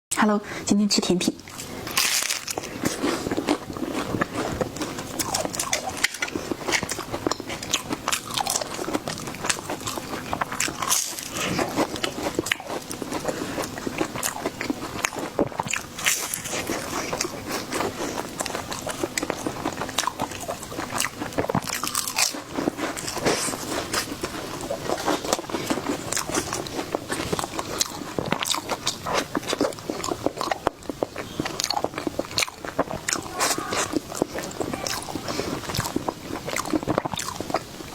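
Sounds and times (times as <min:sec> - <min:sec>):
crunchy dessert chewing: 0:01.4 - 0:37.9.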